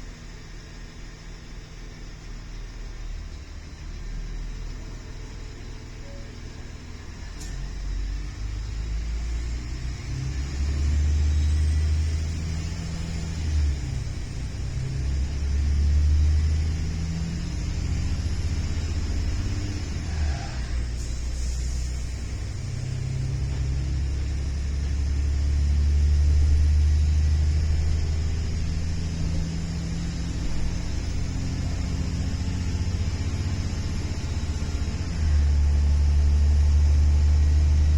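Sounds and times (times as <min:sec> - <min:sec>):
train rumble inside carriage: 0:00.0 - 0:37.9.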